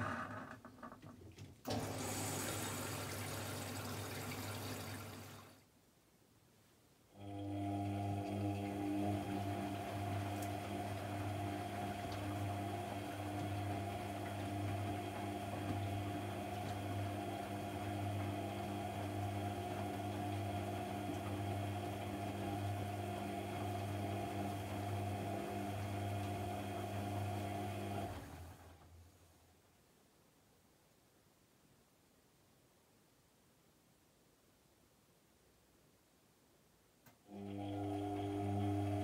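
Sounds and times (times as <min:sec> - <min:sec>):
washing machine humming: 0:01.3 - 0:05.6, 0:07.2 - 0:29.0, 0:37.2 - 0:39.0.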